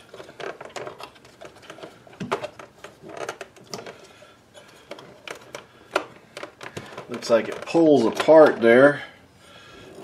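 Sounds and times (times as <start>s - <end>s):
plastic parts clicking and knocking: 0.0s - 8.6s.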